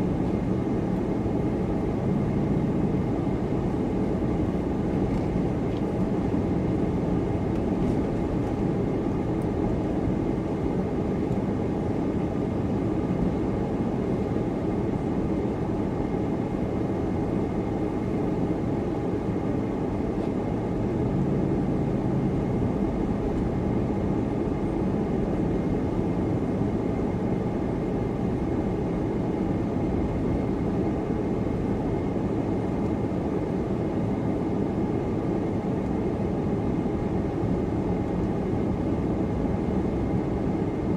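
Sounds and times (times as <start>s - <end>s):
car engine and tyre rumble: 0.0s - 11.8s, 19.4s - 28.7s.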